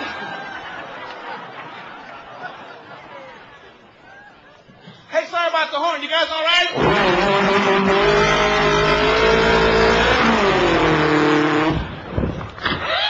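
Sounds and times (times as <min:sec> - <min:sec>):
vocal imitation of vehicle engine: 0:06.8 - 0:11.8.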